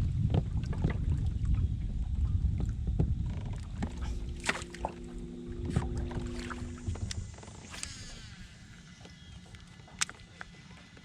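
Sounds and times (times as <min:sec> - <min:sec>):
low rumble: 0:00.0 - 0:10.0
steady low hum: 0:00.0 - 0:11.0.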